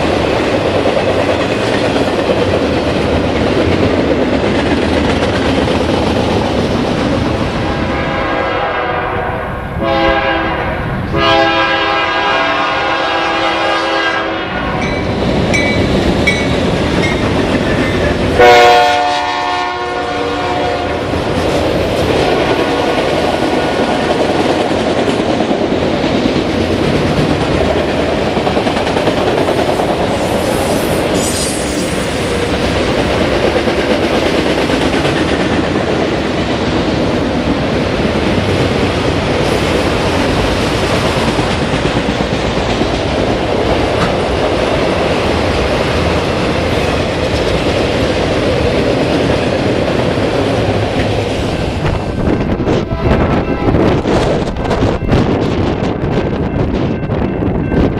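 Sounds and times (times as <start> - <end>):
train wheels clacking on rails: 0.0 - 7.6, 14.6 - 19.8, 21.0 - 57.9
locomotive air horn blasts: 7.9 - 14.9, 18.4 - 21.0, 52.3 - 54.0.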